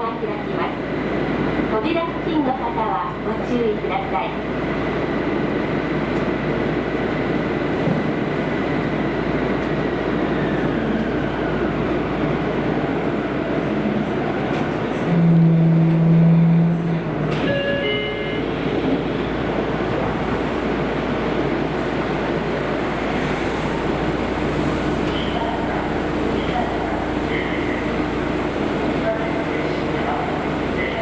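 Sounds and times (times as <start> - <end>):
train motor whine: 14.5 - 19.3
loud low steady hum: 14.8 - 31.0.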